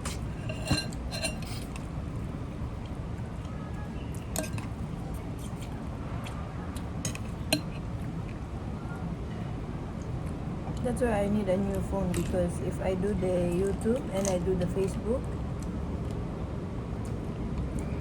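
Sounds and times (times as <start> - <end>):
steady low hum: 0.0 - 18.0
shells and utensils clinking on plate: 0.1 - 1.8, 4.3 - 4.7.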